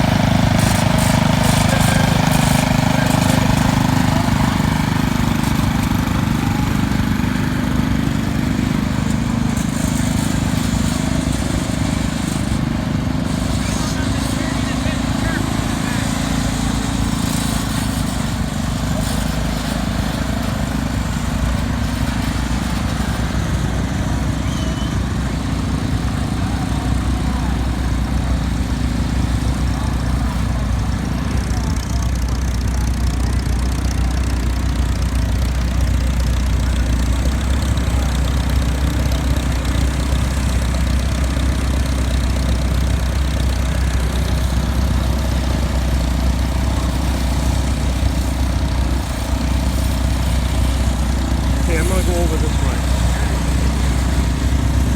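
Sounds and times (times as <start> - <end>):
tractor engines rumbling: 0.0 - 54.9.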